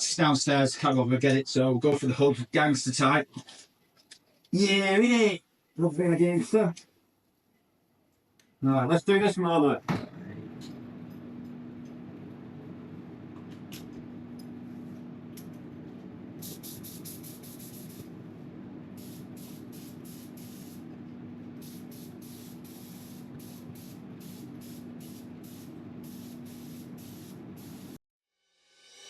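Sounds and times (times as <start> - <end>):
steady hum: 9.7 - 28.0
spray gun hissing bursts: 16.4 - 18.2, 18.9 - 28.0.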